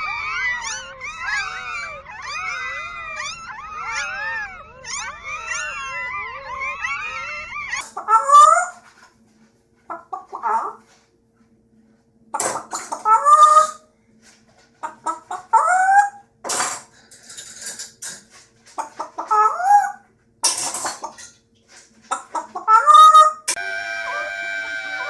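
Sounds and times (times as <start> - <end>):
bird squawking: 0.0 - 8.8, 9.9 - 10.8, 12.4 - 13.9, 14.8 - 16.2, 18.8 - 20.0, 22.1 - 23.6.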